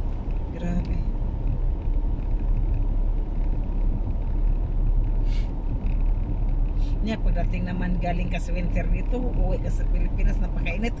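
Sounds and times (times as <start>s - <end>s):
engine and tyre rumble: 0.0s - 11.0s
brief hiss: 5.2s - 5.5s.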